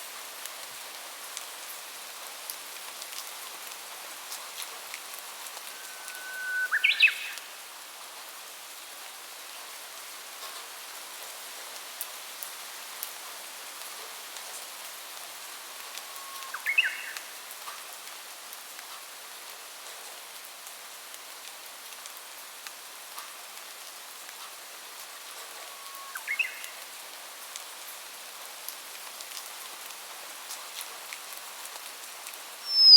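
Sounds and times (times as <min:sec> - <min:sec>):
steady rain hiss: 0:00.0 - 0:32.9
songbird singing: 0:05.4 - 0:07.6, 0:15.6 - 0:17.3, 0:25.7 - 0:26.8, 0:32.7 - 0:32.9.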